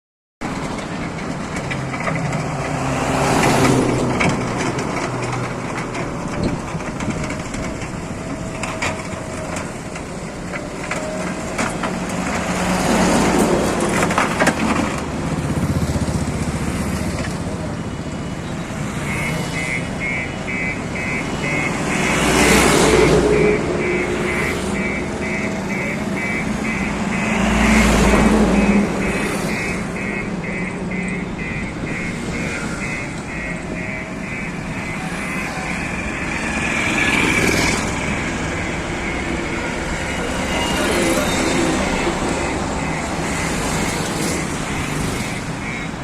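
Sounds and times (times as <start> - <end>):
construction machinery engine hum: 0.4 - 46.0
short high beeps: 19.0 - 36.5, 38.6 - 46.0.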